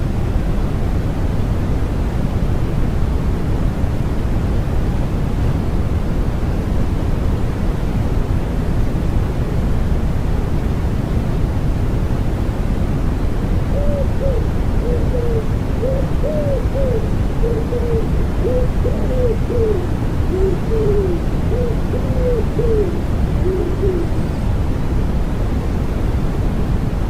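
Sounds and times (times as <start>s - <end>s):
low rushing white noise: 0.0s - 27.0s
wood pigeon cooing: 13.7s - 24.3s.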